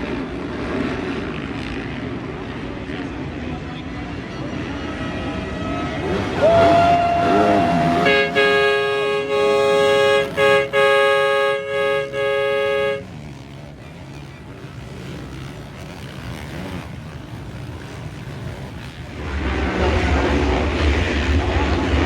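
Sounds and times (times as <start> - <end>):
horn blasts: 4.7 - 20.4.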